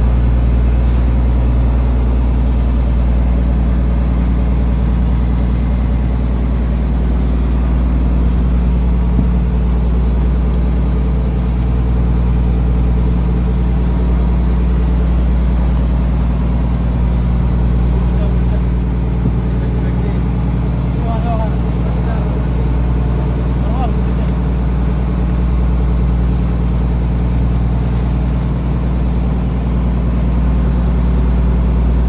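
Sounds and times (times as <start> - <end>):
diesel engine drone: 0.0 - 32.0
thin high whine: 0.0 - 32.0.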